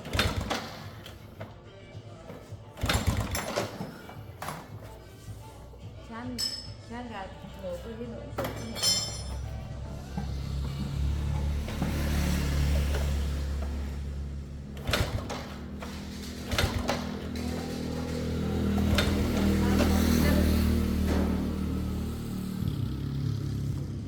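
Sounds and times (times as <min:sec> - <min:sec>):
motorcycle engine running: 0:02.5 - 0:04.9, 0:08.4 - 0:24.0.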